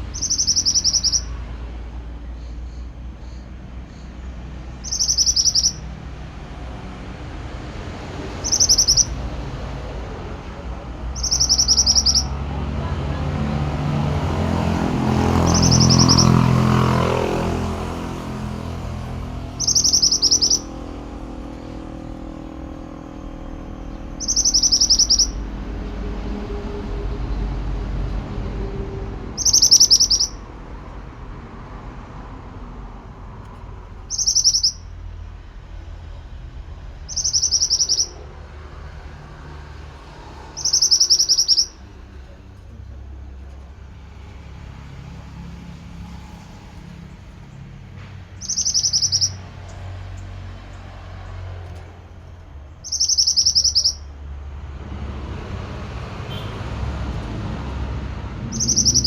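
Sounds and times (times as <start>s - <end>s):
bird singing high phrases: 0.0s - 1.4s, 2.4s - 6.0s, 8.3s - 9.2s, 11.1s - 12.4s, 15.2s - 17.1s, 19.5s - 25.5s, 29.3s - 30.4s, 34.0s - 34.9s, 37.1s - 38.2s, 40.5s - 42.4s, 48.4s - 49.8s, 52.7s - 54.1s, 58.4s - 59.0s
low rumble: 17.5s - 34.1s.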